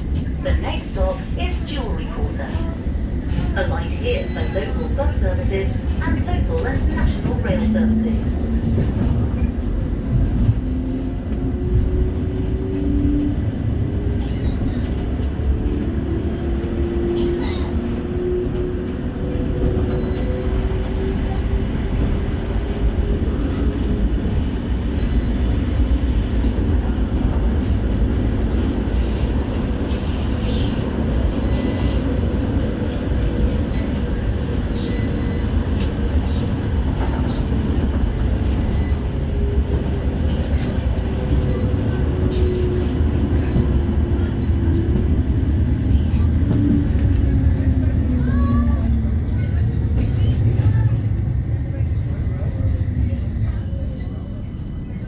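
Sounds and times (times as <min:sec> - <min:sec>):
wheel on rail rumble: 0:02.8 - 0:55.0.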